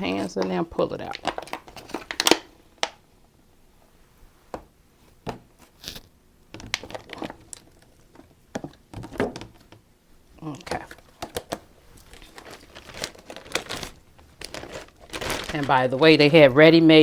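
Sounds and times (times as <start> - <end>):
plastic packaging crinkling: 0.0 - 3.0, 6.6 - 8.2, 10.7 - 16.8.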